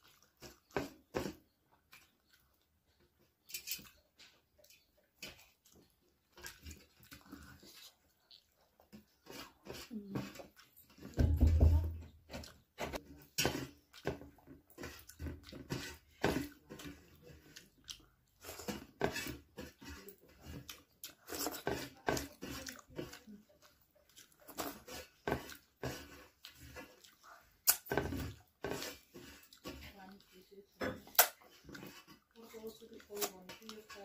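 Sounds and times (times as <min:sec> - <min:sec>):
chewing mouth sounds: 0:00.0 - 0:01.1, 0:01.7 - 0:11.0, 0:16.8 - 0:18.8, 0:20.0 - 0:28.4.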